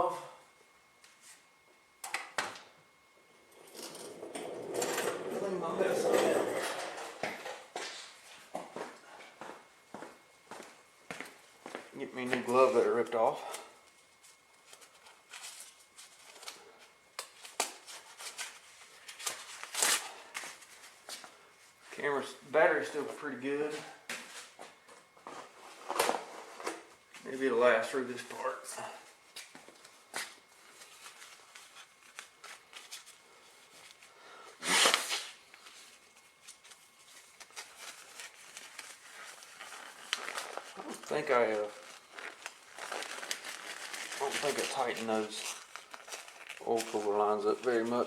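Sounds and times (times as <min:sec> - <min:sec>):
glove rustling: 0:35.9 - 0:48.0.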